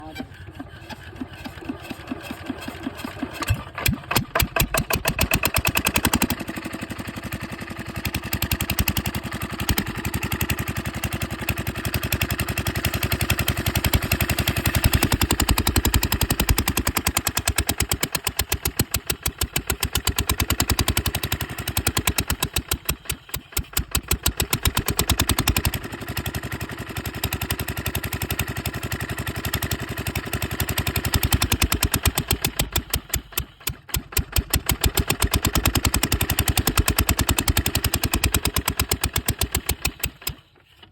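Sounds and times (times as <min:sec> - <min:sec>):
small engine running under load: 0:00.0 - 0:40.9.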